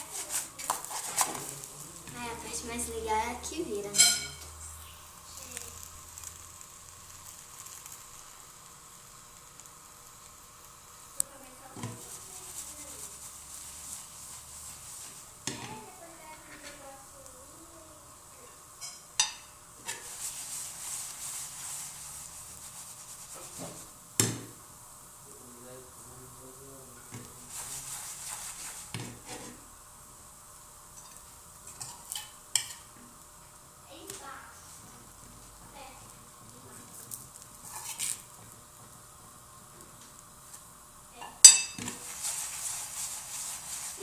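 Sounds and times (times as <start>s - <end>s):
batter sizzling in frying pan: 0.0s - 44.0s
utensil knocking on pan: 3.9s - 4.5s.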